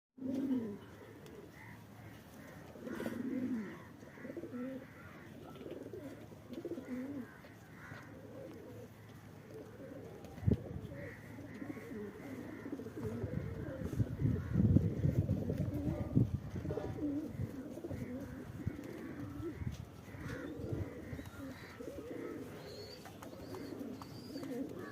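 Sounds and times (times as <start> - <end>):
pigeons cooing: 0.2 - 24.9.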